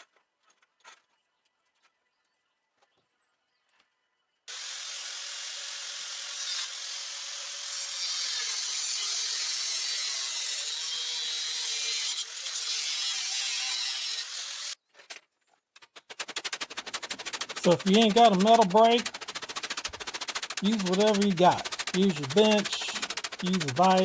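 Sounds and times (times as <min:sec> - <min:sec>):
grinder cutting steel: 0:04.5 - 0:14.8, 0:17.2 - 0:24.0.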